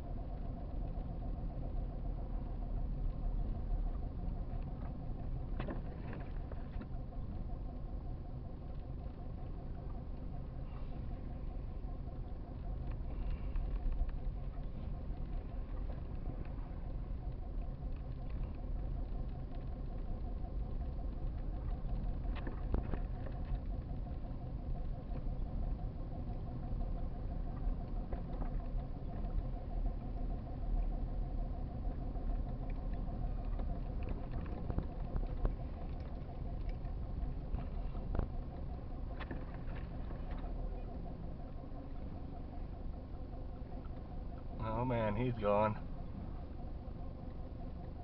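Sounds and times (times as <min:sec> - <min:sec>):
faint clicks: 0:12.8 - 0:24.2, 0:32.3 - 0:42.7.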